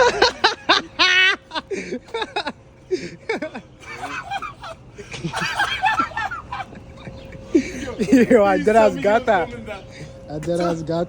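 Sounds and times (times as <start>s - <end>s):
high wavering laugh: 0.0s - 8.8s
people laughing: 0.0s - 10.9s.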